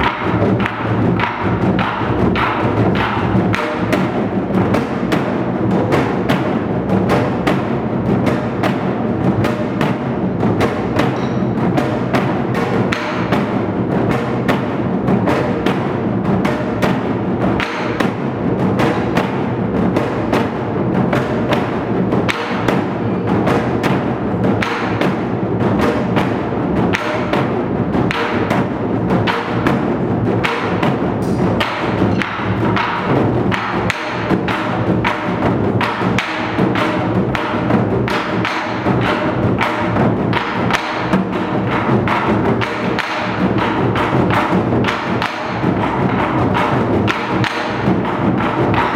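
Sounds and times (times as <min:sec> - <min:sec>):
barrel drums beaten with sticks: 0:00.0 - 0:48.9
sharp stick clacks: 0:11.1 - 0:11.6, 0:30.4 - 0:37.5.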